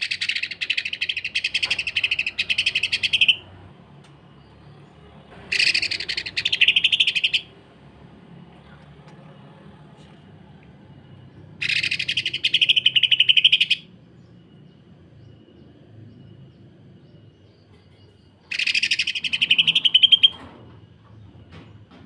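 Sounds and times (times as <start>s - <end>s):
bird harsh rattling calls: 0.0s - 3.5s, 5.4s - 7.6s, 11.6s - 13.8s, 18.5s - 20.4s.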